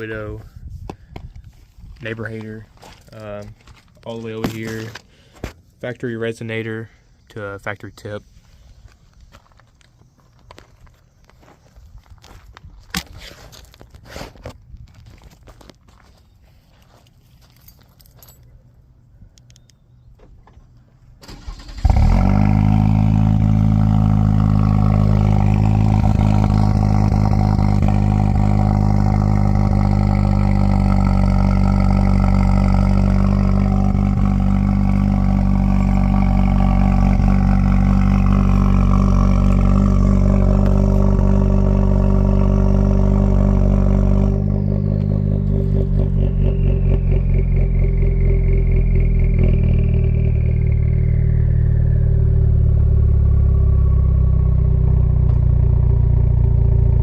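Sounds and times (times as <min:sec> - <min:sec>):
truck engine starting and idling: 0:20.2 - 0:57.0.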